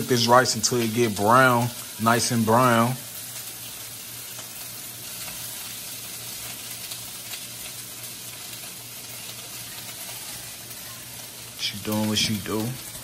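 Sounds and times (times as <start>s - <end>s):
rice sizzling in oil: 0.0s - 13.0s.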